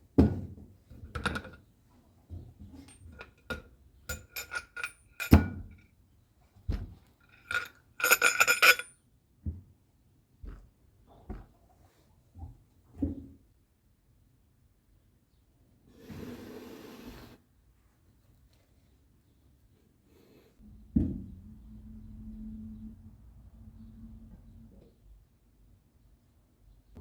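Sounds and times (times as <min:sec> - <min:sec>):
metal tools clinking: 0:02.8 - 0:05.6, 0:07.3 - 0:08.9.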